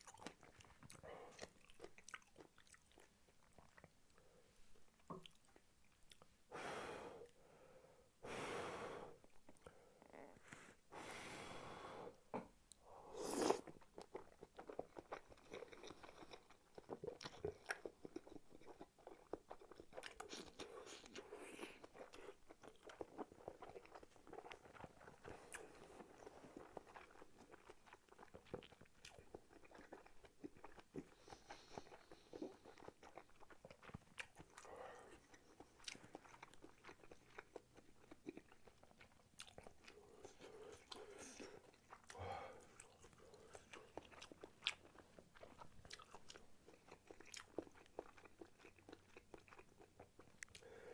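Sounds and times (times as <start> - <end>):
biting and chewing food: 13.7 - 50.7.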